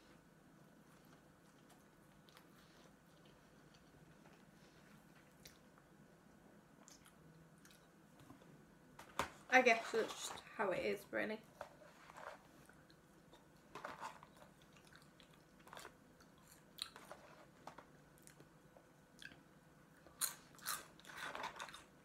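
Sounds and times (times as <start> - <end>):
person chewing crunchy fries: 6.8 - 8.0, 12.8 - 22.0.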